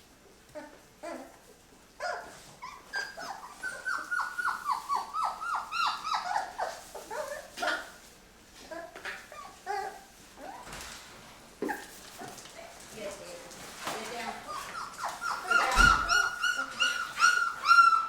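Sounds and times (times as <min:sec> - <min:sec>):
dog whining and yelping: 0:02.0 - 0:08.0, 0:08.7 - 0:10.7, 0:14.4 - 0:18.0.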